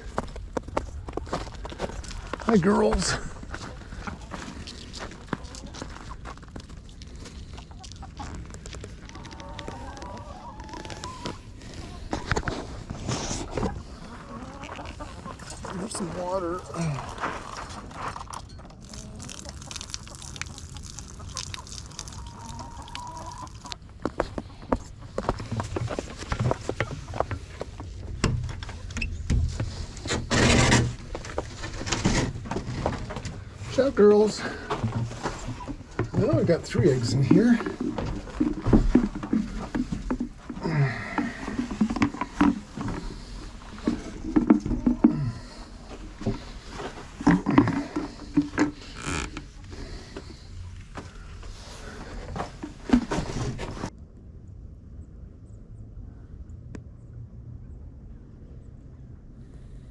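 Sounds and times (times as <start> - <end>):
chickens clucking and squawking: 3.0 - 6.5, 7.4 - 18.0, 20.6 - 28.9, 29.5 - 52.5.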